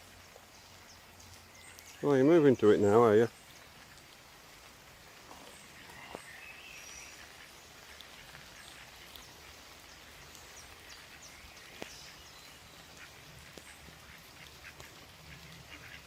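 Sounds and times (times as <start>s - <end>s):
light rain falling: 0.0s - 16.0s
water drips: 0.0s - 16.0s
faint bird calls: 5.1s - 16.0s.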